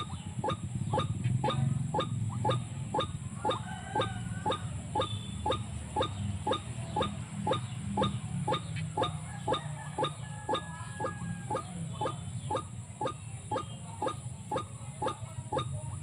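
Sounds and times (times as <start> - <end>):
waterhen calling harsh notes: 0.0 - 16.0.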